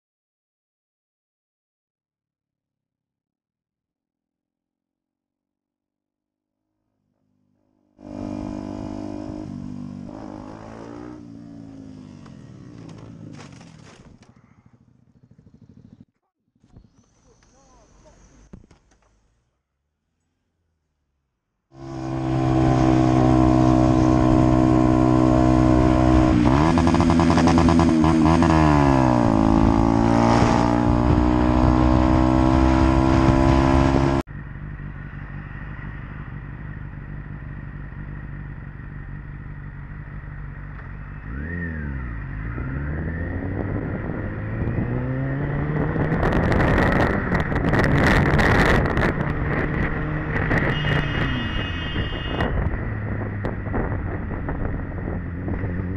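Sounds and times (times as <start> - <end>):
motorcycle revving: 7.1 - 16.2, 21.7 - 55.9
loud motorcycle engine: 7.3 - 16.1, 21.7 - 55.9
wind buffeting microphone: 52.0 - 55.9.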